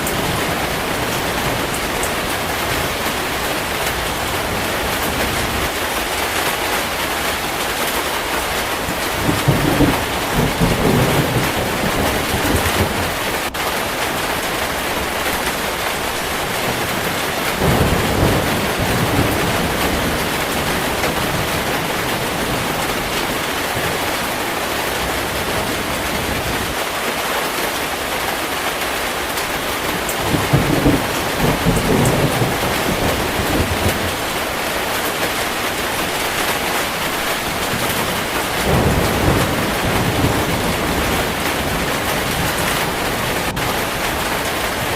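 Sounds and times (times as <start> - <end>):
heavy rain: 0.0 - 44.9
rolls of thunder: 9.2 - 13.2.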